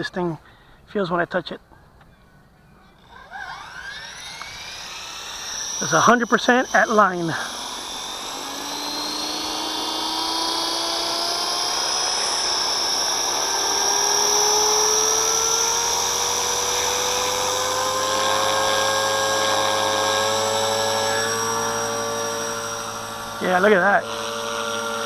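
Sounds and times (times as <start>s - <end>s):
rc helicopter motor whine: 2.8s - 25.0s.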